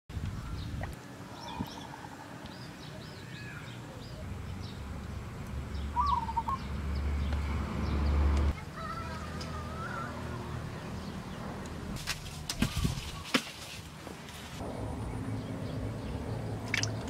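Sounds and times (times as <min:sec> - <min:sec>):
birds chirping: 0:00.1 - 0:13.4, 0:14.6 - 0:17.0
bird warbling call: 0:05.9 - 0:06.7.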